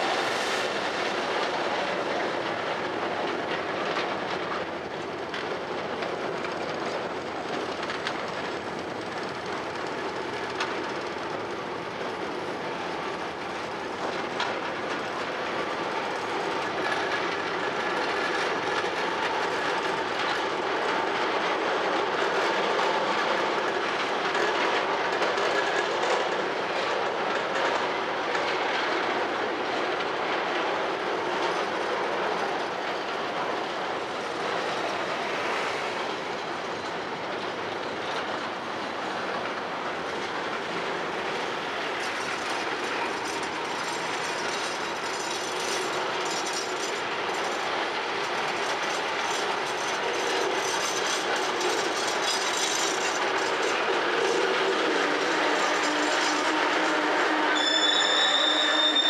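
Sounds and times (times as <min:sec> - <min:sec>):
wagon wheels clattering on rails: 0:41.0 - 0:57.0.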